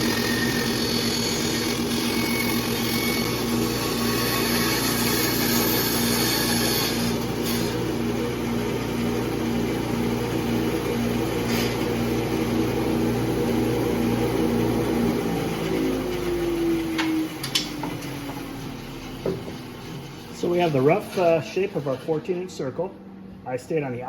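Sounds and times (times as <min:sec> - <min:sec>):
motor winding down: 0:00.0 - 0:07.8
bandsaw and dust collector hum: 0:00.0 - 0:22.9.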